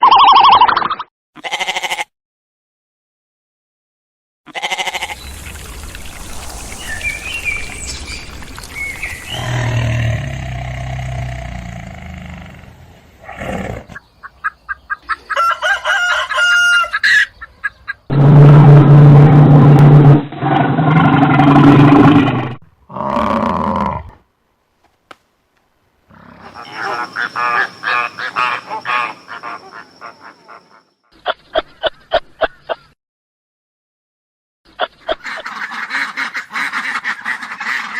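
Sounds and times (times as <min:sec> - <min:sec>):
rapid pulsed animal call: 0:04.8 - 0:12.8, 0:26.1 - 0:31.0
small high chirps: 0:05.0 - 0:10.0, 0:26.5 - 0:30.9.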